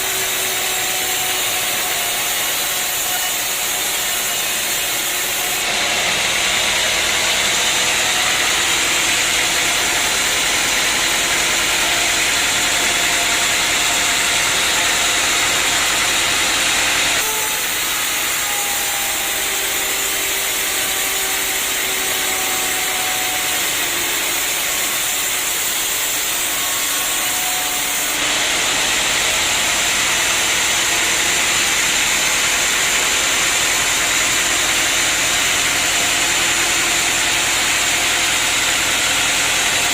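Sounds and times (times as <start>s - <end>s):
sawmill machinery hissing: 0.0s - 39.9s
engine-like drone: 5.6s - 22.7s.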